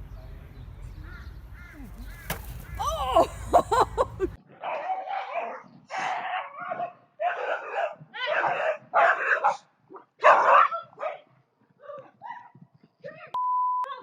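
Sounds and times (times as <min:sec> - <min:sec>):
dog barking harshly: 0:04.6 - 0:09.6, 0:10.2 - 0:11.2.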